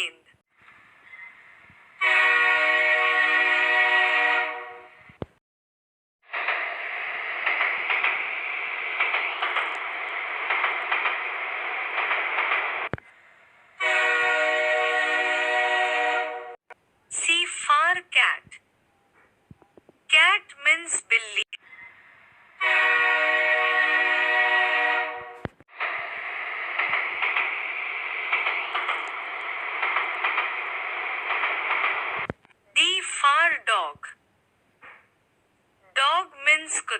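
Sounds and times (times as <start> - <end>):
train horn blast: 2.0 - 5.1, 13.8 - 16.6, 22.6 - 25.6
train rattling clatter: 6.3 - 13.0, 25.3 - 32.4.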